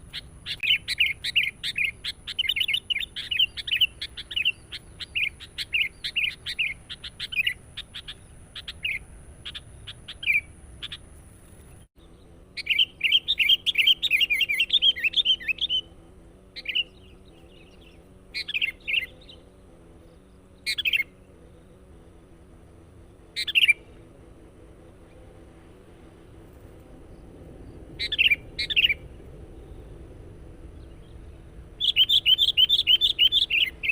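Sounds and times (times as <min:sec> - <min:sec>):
bulbul chirping and chattering: 0:00.1 - 0:11.1, 0:12.1 - 0:16.0, 0:16.6 - 0:21.3, 0:23.4 - 0:24.0, 0:31.8 - 0:33.9.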